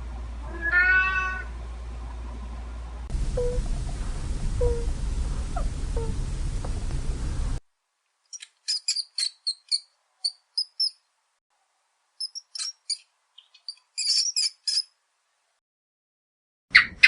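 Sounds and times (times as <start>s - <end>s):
bird chirping: 8.3s - 11.1s, 12.2s - 14.9s.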